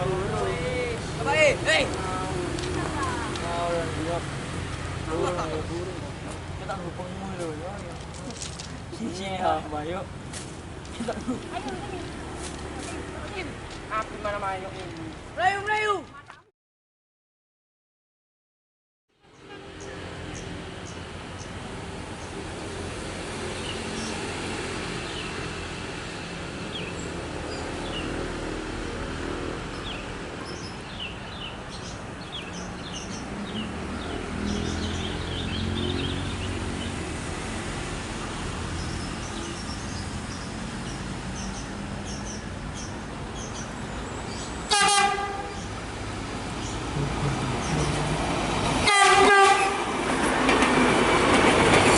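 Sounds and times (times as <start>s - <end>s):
train rumbling by: 44.5s - 51.9s
train horn toot: 44.7s - 45.6s, 48.8s - 49.9s.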